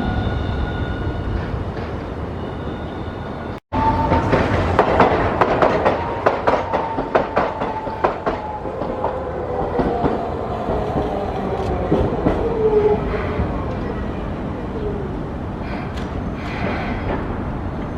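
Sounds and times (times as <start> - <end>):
streetcar wheels clacking over rail joints: 4.0 - 12.6.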